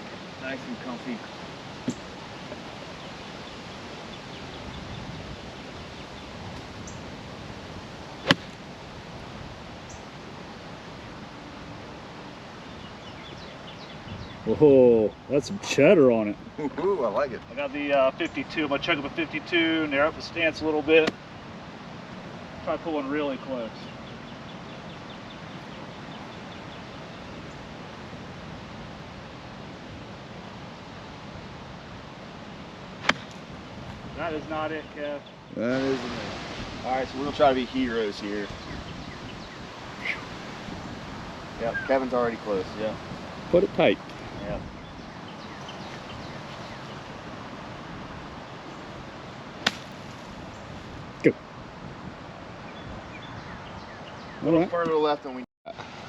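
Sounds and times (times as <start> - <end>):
wind noise on microphone: 3.4 - 10.4, 11.0 - 14.8, 33.2 - 34.7, 35.5 - 49.2, 49.9 - 54.1
golf ball struck: 8.2 - 8.6, 33.0 - 33.4, 49.6 - 50.1.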